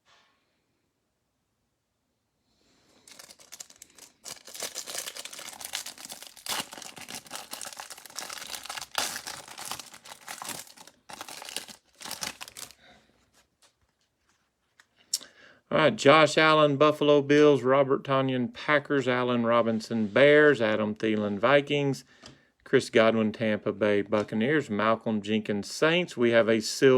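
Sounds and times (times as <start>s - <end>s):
plastic wrapping crinkling and tearing: 3.0s - 14.0s.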